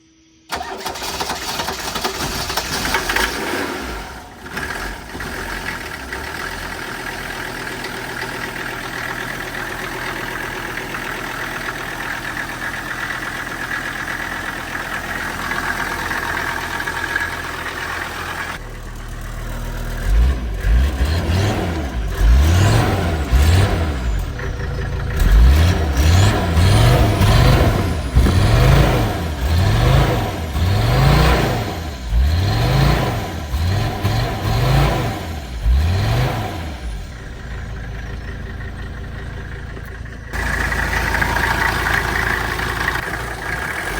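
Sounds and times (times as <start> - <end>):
diesel engine idling and revving: 0.5 - 43.9.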